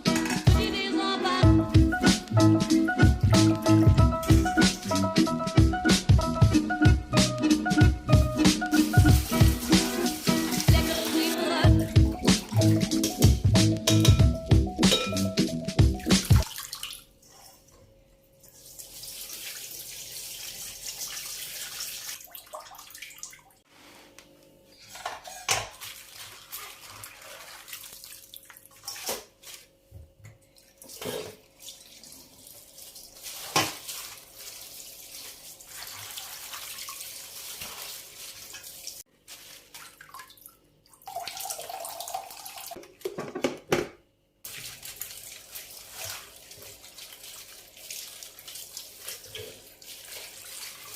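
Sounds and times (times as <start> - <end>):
dishes knocking and clattering: 12.9 - 15.3, 43.0 - 44.0.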